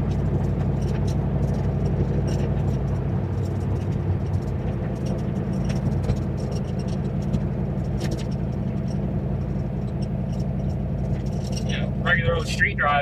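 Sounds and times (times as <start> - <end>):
car engine cruising: 0.0 - 13.0
light ticks and rattles: 0.0 - 13.0.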